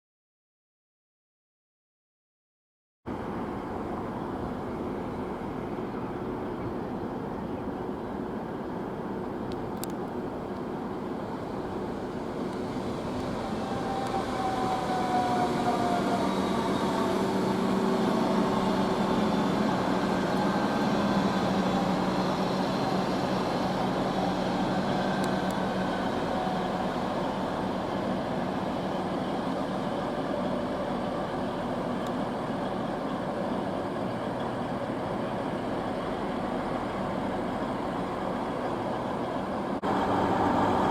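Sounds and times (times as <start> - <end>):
train rumbling past: 3.1 - 40.9
train wheel squeal: 12.8 - 31.8.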